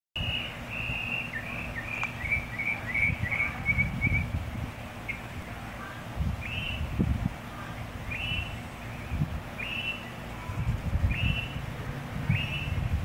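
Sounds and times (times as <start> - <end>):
bird chirping: 0.2 - 4.4, 5.0 - 6.9, 7.6 - 11.6, 12.3 - 12.9
wind buffeting microphone: 0.2 - 13.0.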